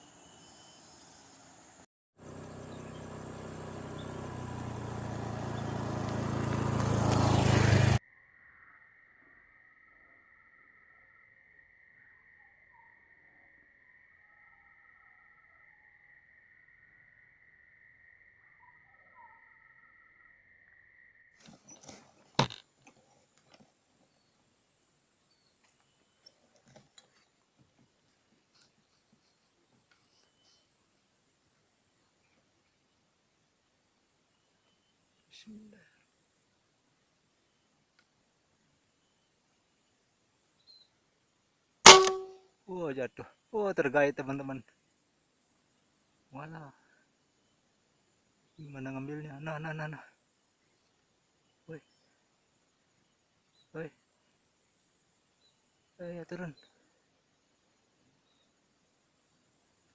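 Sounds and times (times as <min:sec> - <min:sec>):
faint high chirps: 0:00.0 - 0:01.8, 0:08.0 - 0:21.8
motor vehicle engine approaching: 0:02.2 - 0:08.0
sharp knock: 0:41.9 - 0:42.4.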